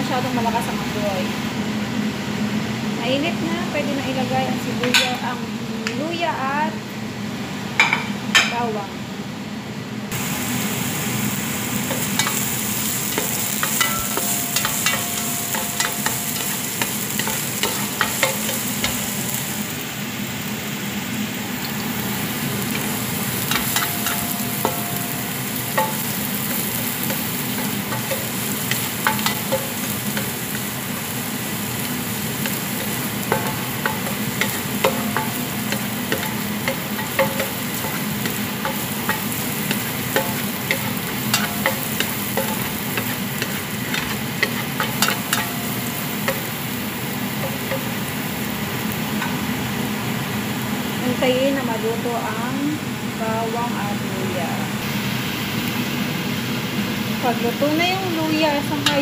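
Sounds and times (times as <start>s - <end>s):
garlic sizzling in hot oil: 10.1s - 59.0s
spatula scraping pan: 32.4s - 46.5s.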